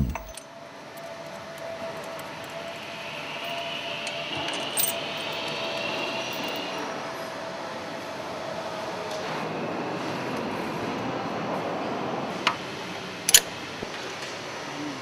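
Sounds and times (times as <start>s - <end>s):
machinery hum: 0.0s - 0.4s
metallic jingle: 0.0s - 0.4s.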